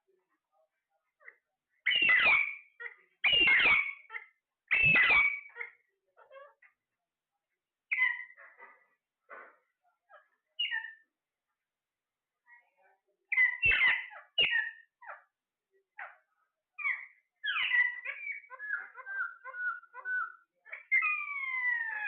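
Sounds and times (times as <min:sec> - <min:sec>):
parrots squawking: 0:01.9 - 0:06.7, 0:07.9 - 0:11.0, 0:13.3 - 0:15.2, 0:16.8 - 0:22.0.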